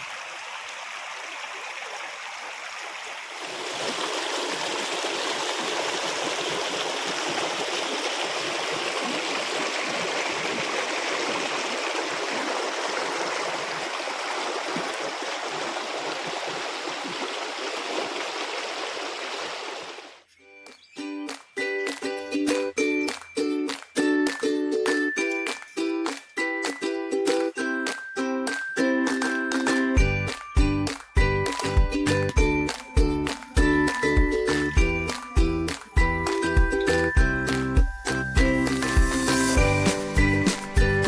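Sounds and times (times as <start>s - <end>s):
water rushing over rocks: 0.0s - 20.2s.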